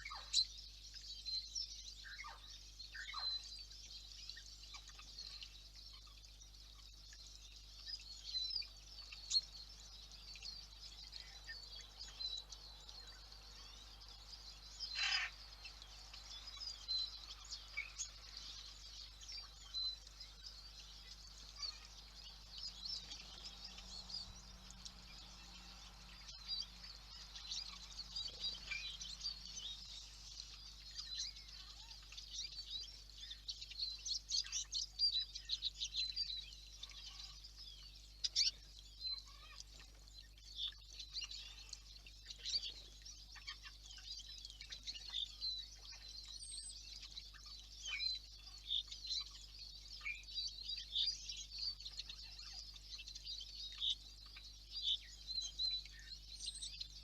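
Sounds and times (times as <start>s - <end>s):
faint steady hum: 0.0s - 57.0s
small birds chirping: 0.0s - 57.0s
harsh bird call: 15.0s - 15.3s.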